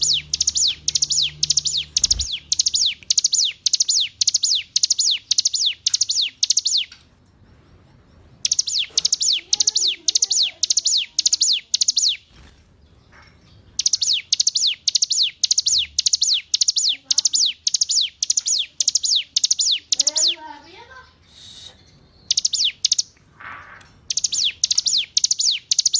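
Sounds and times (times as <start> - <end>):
bird singing high notes: 0.0 - 6.9, 8.4 - 12.2.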